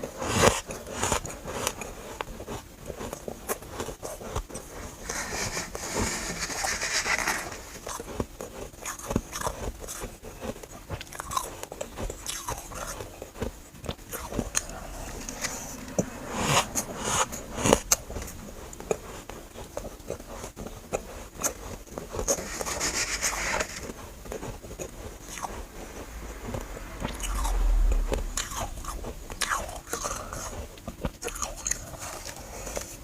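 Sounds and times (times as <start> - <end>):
chewing crunchy frost: 0.0 - 26.4, 27.1 - 33.0
low bump: 14.2 - 19.6, 25.1 - 30.7.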